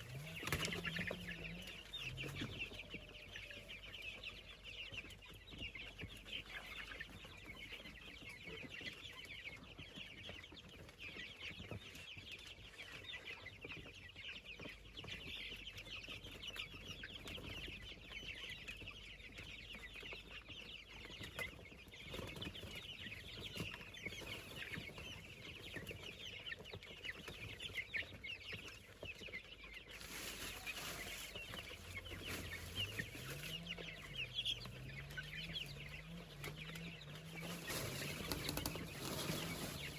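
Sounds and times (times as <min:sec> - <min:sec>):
chickens cheeping: 0:00.0 - 0:39.9.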